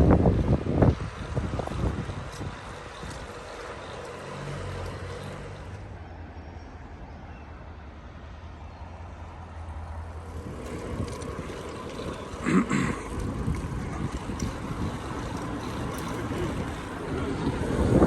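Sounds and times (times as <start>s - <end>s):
wind noise on microphone: 0.0s - 3.9s, 10.2s - 18.0s
vehicle engine humming: 0.0s - 18.0s.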